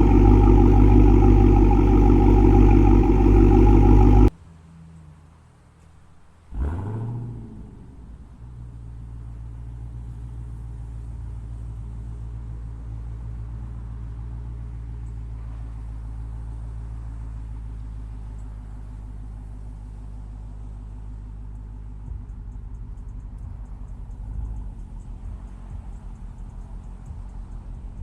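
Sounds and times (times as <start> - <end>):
car engine starting and idling: 0.0 - 4.3.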